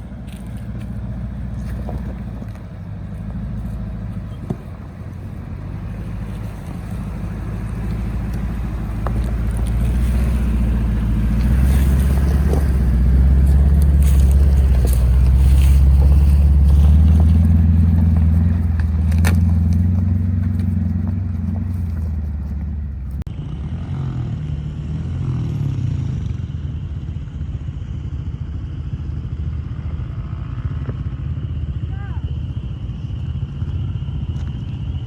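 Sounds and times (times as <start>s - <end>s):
tyres crunching over rough ground: 0.0s - 23.3s
truck engine under load: 0.0s - 35.0s.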